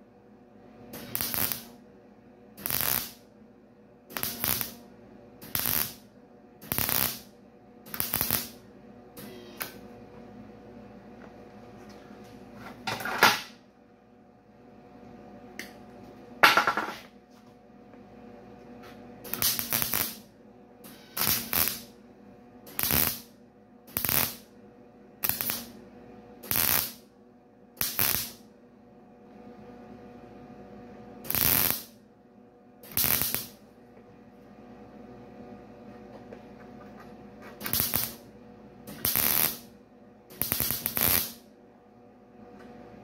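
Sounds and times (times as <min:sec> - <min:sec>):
faint steady hum: 0:00.0 - 0:43.0
short bursts of welding: 0:00.9 - 0:01.7, 0:02.6 - 0:03.2, 0:04.1 - 0:04.8, 0:05.4 - 0:06.0, 0:06.6 - 0:07.3, 0:07.9 - 0:08.6, 0:19.2 - 0:21.9, 0:22.7 - 0:23.3, 0:23.9 - 0:24.5, 0:25.2 - 0:25.7, 0:26.4 - 0:27.0, 0:27.8 - 0:28.4, 0:31.2 - 0:32.0, 0:32.8 - 0:33.6, 0:37.6 - 0:38.2, 0:38.9 - 0:39.7, 0:40.3 - 0:41.4.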